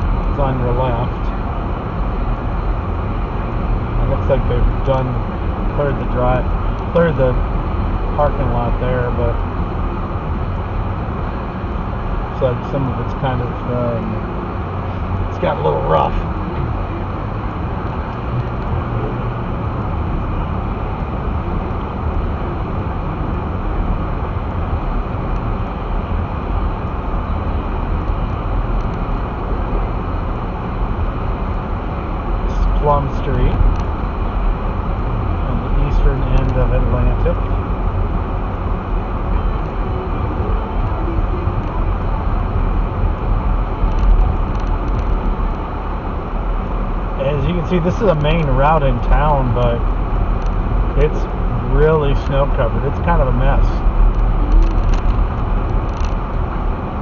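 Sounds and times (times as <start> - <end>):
car cabin road noise: 0.0 - 57.0.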